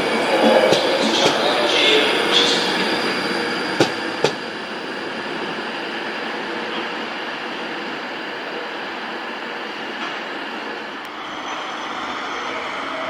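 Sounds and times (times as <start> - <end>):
train wheel clacks: 0.0 - 3.0, 3.8 - 4.6
train rumbling: 0.0 - 13.0.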